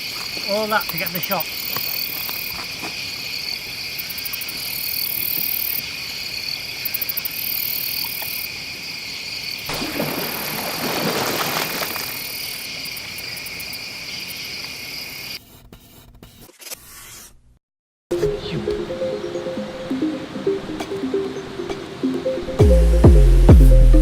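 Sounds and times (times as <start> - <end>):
insects chirping: 0.0 - 15.4, 18.6 - 22.6.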